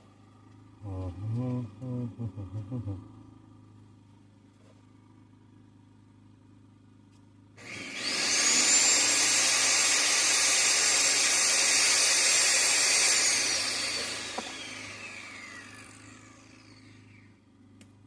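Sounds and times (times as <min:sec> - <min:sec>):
electric tool motor whining: 0:07.6 - 0:17.4.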